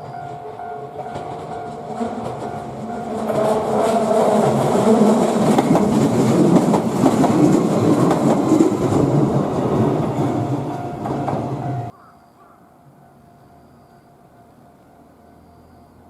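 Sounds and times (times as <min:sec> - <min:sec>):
train wheels on rails: 0:00.0 - 0:11.9
electric train passing: 0:00.0 - 0:16.0.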